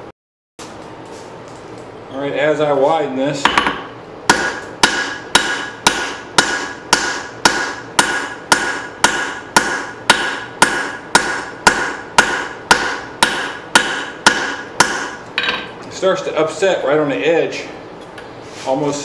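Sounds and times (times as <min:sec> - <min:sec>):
hammer ringing on hot steel: 0:04.3 - 0:15.6.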